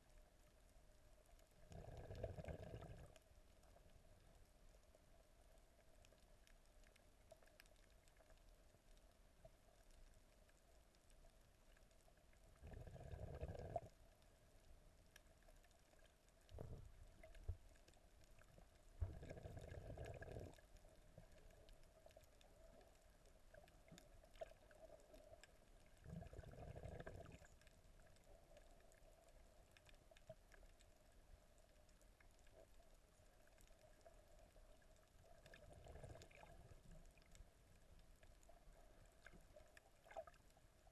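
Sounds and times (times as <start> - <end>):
faint steady hum: 0.0 - 40.9
muffled underwater gurgling: 19.0 - 20.6, 26.0 - 27.5.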